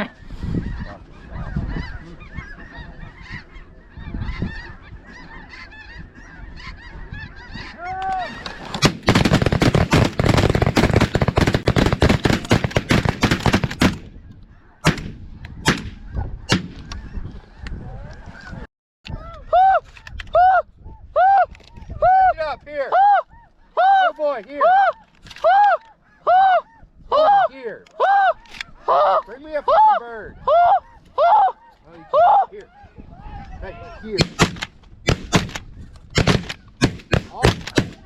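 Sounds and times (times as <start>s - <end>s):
geese honking: 0.0s - 9.9s, 14.2s - 18.7s, 22.0s - 34.5s
sharp cracks: 8.6s - 14.1s, 34.2s - 38.0s.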